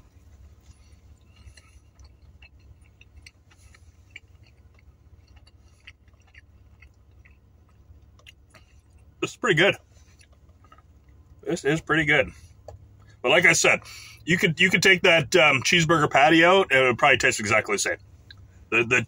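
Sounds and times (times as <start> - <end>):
low steady hum: 0.0 - 19.0
person chewing food: 0.1 - 9.2, 9.8 - 11.4, 18.0 - 18.6.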